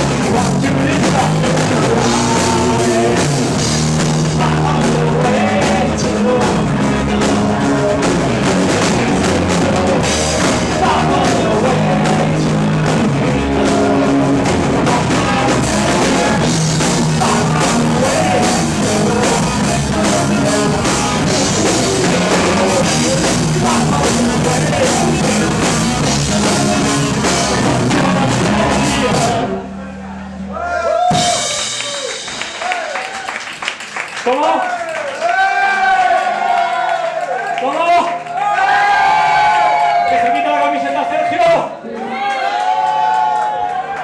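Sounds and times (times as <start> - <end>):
drum kit: 0.0 - 29.7, 30.9 - 33.9
electric guitars: 0.0 - 29.8
person singing: 0.0 - 29.8
bass guitar: 0.0 - 33.1.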